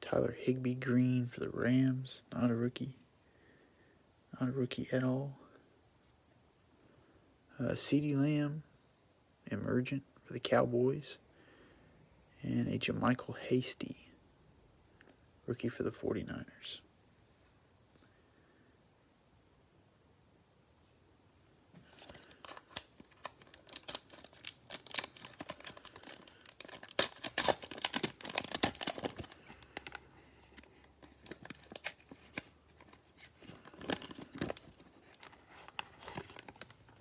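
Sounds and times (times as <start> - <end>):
plastic wrapper tearing and crinkling: 21.8 - 37.0.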